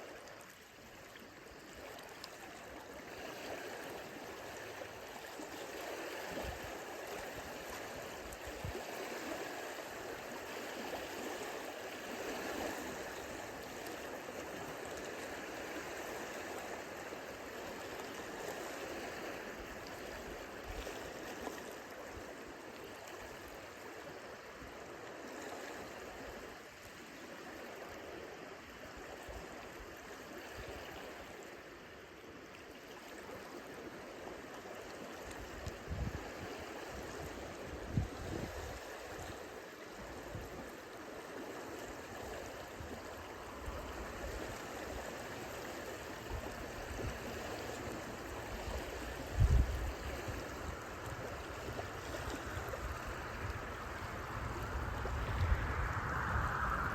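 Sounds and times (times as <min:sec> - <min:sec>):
lake waves lapping on shore: 0:00.0 - 0:56.9.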